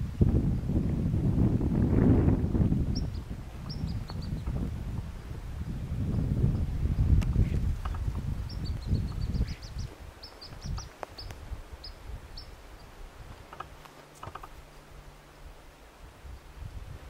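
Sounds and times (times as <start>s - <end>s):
low wind rumble: 0.0s - 17.0s
small bird chirping: 2.9s - 4.6s, 6.4s - 14.7s.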